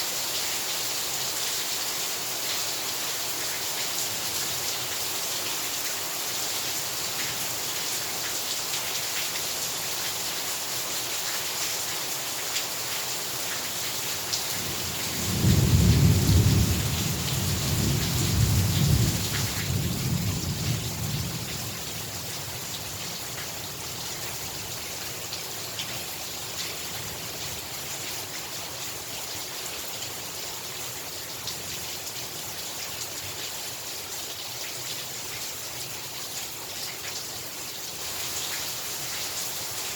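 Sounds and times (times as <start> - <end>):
heavy rain falling: 0.0 - 39.9
thunder rumbling: 15.2 - 21.4.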